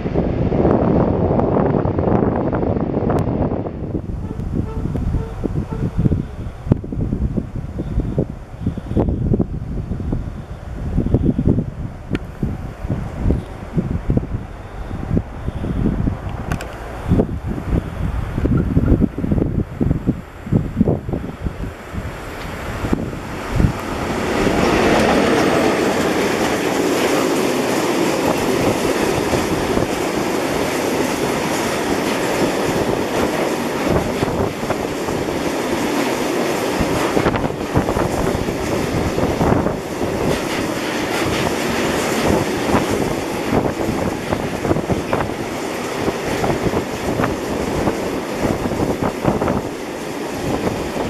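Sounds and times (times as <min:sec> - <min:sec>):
train wheels rumbling on rails: 0:00.0 - 0:51.0
wheels clicking over rail joints: 0:21.6 - 0:51.0.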